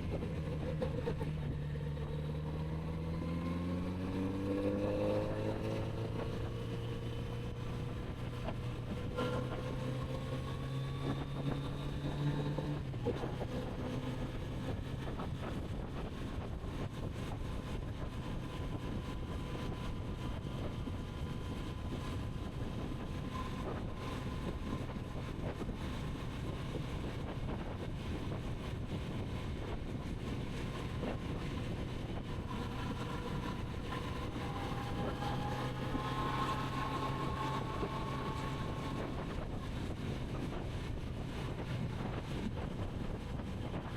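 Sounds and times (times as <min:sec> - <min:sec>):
motorcycle engine revving: 0:00.0 - 0:15.3, 0:30.1 - 0:42.7
wind noise on microphone: 0:00.0 - 0:43.9.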